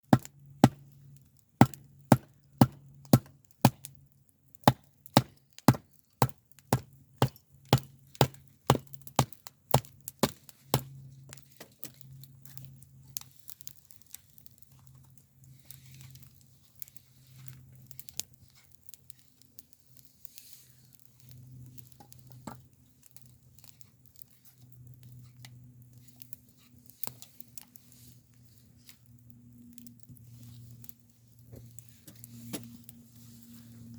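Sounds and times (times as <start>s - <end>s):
wood cracking and splitting: 1.6s - 3.9s, 4.6s - 12.0s.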